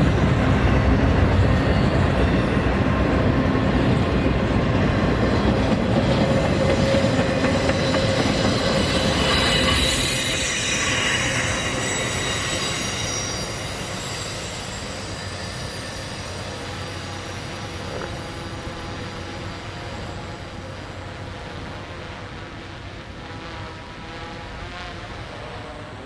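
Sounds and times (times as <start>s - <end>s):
freight train rumbling past: 0.0s - 26.0s
high wheel squeal: 4.2s - 21.1s.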